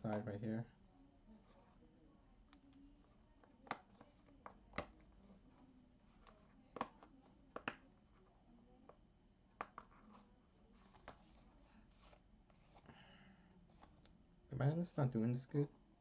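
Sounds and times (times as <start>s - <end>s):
faint cardboard rustling: 2.6s - 9.0s, 9.8s - 14.1s.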